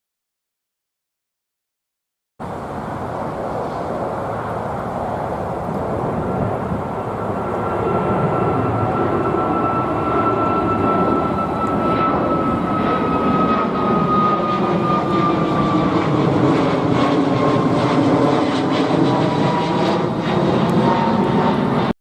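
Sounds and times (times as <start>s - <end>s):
jet engine whine: 2.4s - 22.0s
jet roar: 2.4s - 22.0s.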